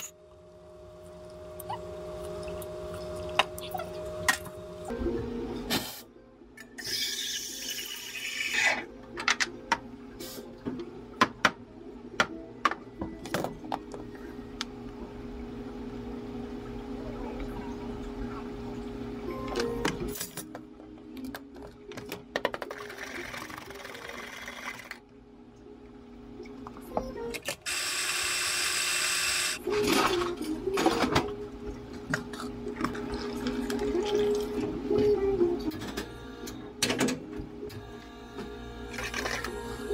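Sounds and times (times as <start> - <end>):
coffee grinder running: 22.6 - 25.0, 27.7 - 29.6, 37.9 - 39.9.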